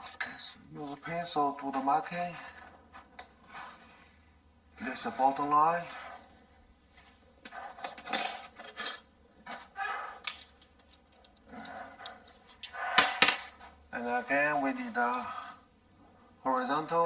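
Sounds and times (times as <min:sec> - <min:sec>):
pencil scratching on wall: 0:01.0 - 0:08.1, 0:09.4 - 0:15.7.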